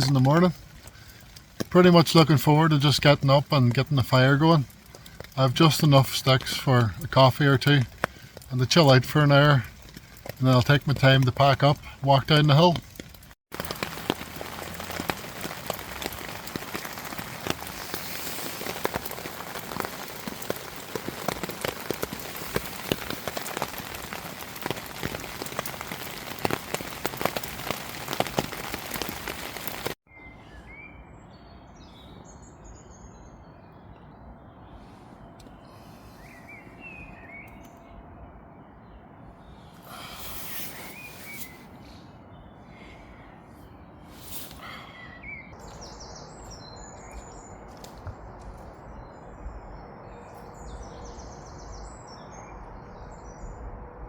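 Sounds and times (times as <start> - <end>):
rain falling on a tarp: 0.0 - 30.0, 39.9 - 41.7, 44.1 - 44.9, 45.5 - 52.2
small birds chirping: 0.0 - 53.6.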